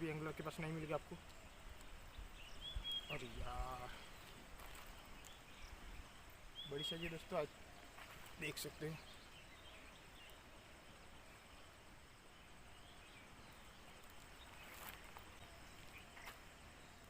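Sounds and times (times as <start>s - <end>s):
faint clicks: 1.2s - 2.0s.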